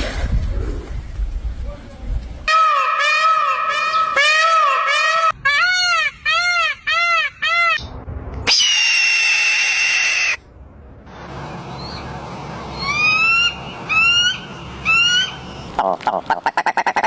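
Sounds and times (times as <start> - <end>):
animal calls: 2.5 - 7.8, 12.8 - 17.0
harsh animal screech: 8.5 - 10.4.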